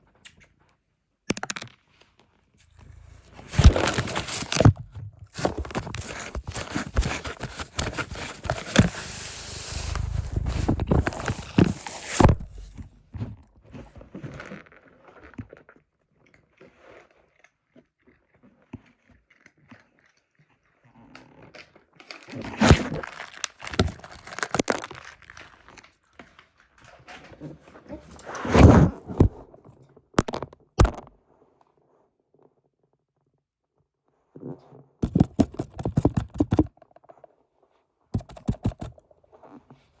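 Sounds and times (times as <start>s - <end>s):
cat crunching snacks: 3.0s - 12.5s, 18.8s - 25.9s.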